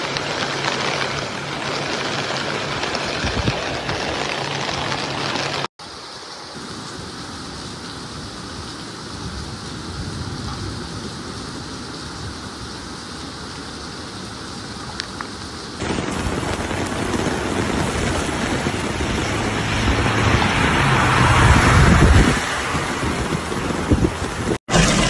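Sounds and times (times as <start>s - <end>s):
heavy rain hissing: 0.0s - 25.0s.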